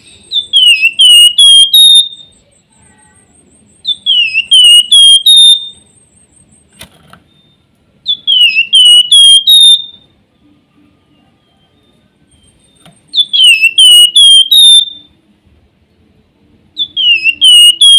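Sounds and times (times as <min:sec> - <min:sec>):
songbird whistling: 0:00.0 - 0:02.5, 0:03.4 - 0:10.2, 0:11.0 - 0:15.2, 0:16.8 - 0:17.9.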